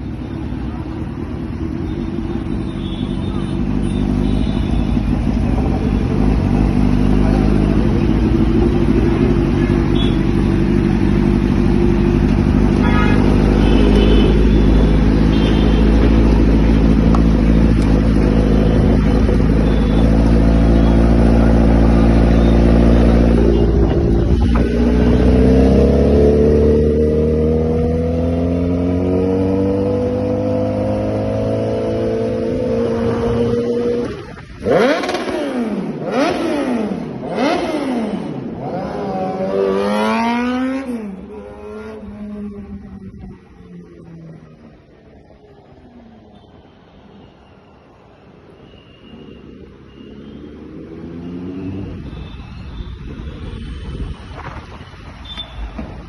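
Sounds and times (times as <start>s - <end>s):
motorcycle engine revving: 3.5s - 44.7s.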